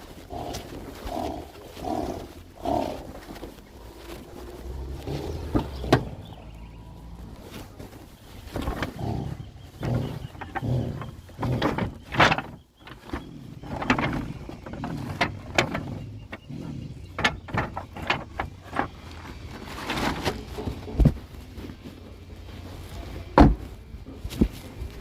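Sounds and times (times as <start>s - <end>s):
knocks and clatters: 3.2s - 6.6s, 7.5s - 21.8s.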